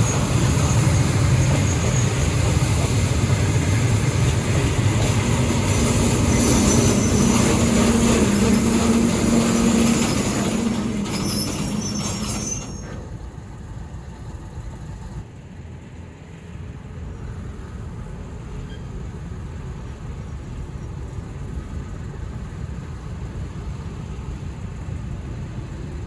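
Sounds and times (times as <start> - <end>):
train wheel squeal: 0.0 - 3.8, 4.5 - 13.5, 18.5 - 19.0
locomotive engine tone: 0.0 - 15.2
train rail rumble: 0.0 - 26.0.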